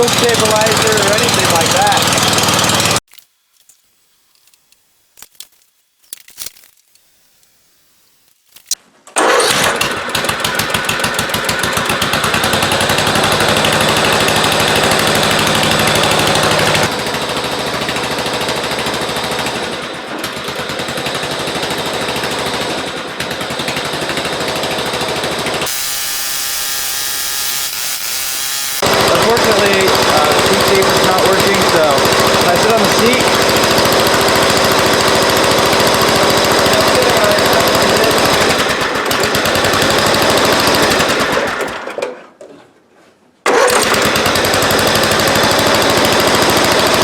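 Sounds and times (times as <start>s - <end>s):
lawn mower engine running: 0.0s - 3.1s, 9.2s - 42.0s, 43.4s - 47.0s.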